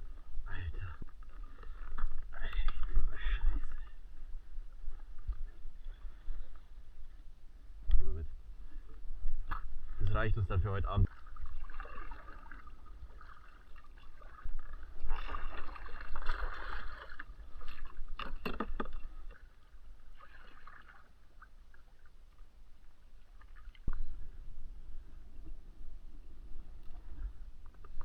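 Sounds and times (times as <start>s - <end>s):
water splashing and gurgling: 9.4s - 24.4s.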